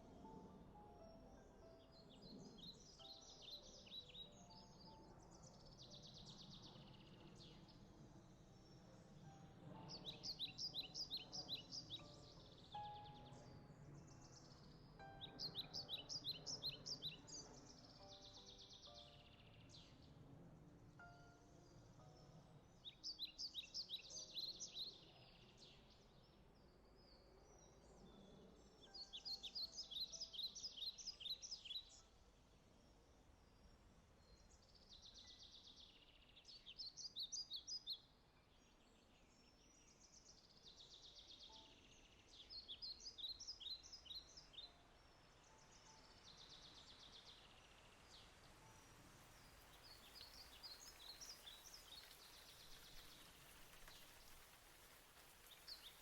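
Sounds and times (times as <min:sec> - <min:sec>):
songbird chirping and trilling: 0:00.0 - 0:56.0
light rain hiss: 0:44.9 - 0:56.0.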